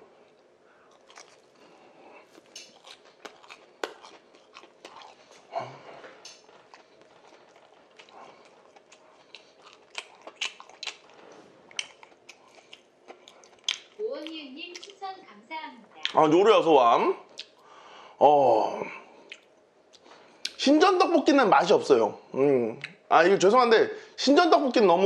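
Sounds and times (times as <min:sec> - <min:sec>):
man chewing food: 0:00.0 - 0:14.0, 0:14.7 - 0:15.0, 0:17.3 - 0:18.0, 0:19.0 - 0:20.6.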